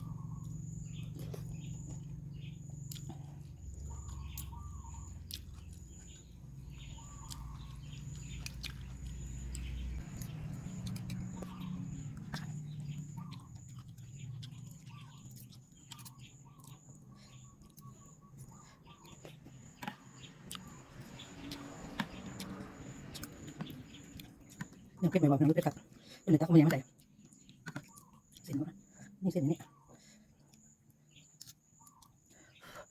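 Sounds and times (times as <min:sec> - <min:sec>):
birds chirping: 0:00.0 - 0:32.9
person chewing: 0:00.4 - 0:25.7.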